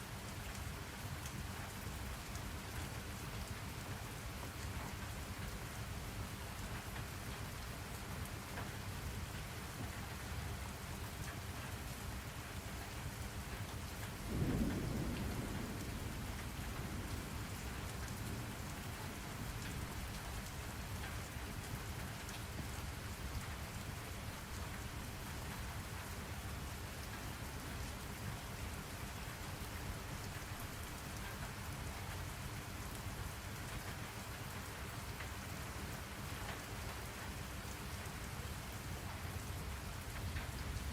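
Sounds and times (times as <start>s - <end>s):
steady rain: 0.0s - 40.9s
thunder rumble: 14.2s - 20.3s.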